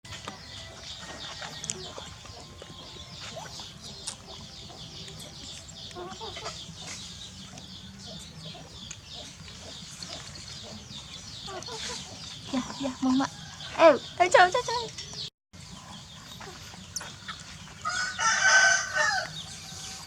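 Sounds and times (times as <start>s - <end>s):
small birds chirping: 0.1s - 20.0s.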